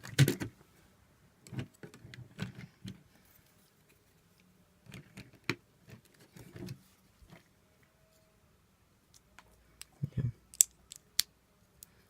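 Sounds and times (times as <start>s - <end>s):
plastic toy bricks clicking: 10.5s - 11.9s.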